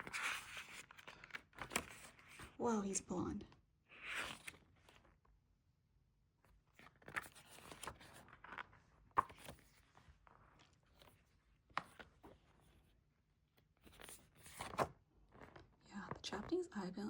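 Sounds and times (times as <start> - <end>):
paper rustling: 0.0 - 2.5, 6.8 - 12.8, 13.8 - 15.7.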